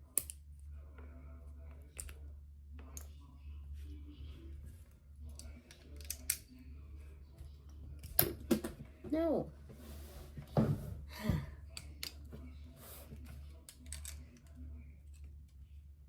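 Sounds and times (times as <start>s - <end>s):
steady low hum: 0.0s - 16.0s
plastic bricks clicking together: 5.7s - 6.4s.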